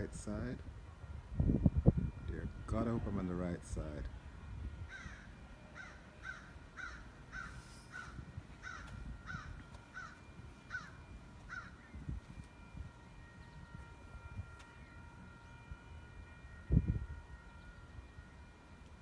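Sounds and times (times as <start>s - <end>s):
bird calling: 4.9s - 12.1s.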